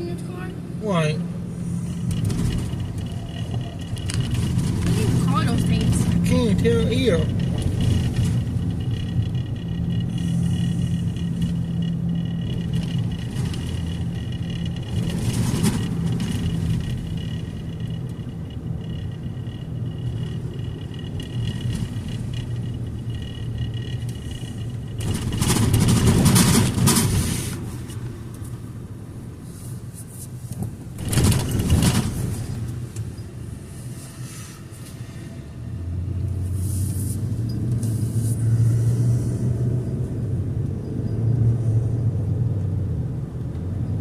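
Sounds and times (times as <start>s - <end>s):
car engine and road hum: 0.0s - 44.0s
rushes of noise: 1.2s - 28.4s.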